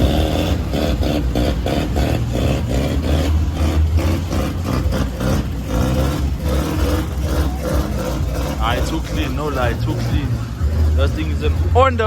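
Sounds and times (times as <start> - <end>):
car engine deep rumble: 0.0 - 12.0.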